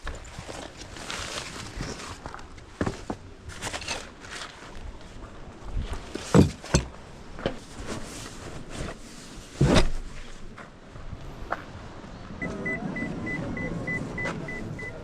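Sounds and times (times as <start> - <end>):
camping gear knocking and thumping: 1.8 - 4.2, 6.0 - 8.0, 9.6 - 10.1.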